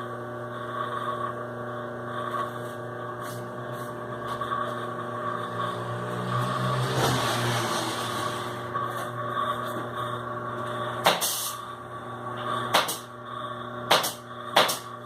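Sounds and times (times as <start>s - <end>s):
sewing machine motor humming: 3.2s - 9.5s.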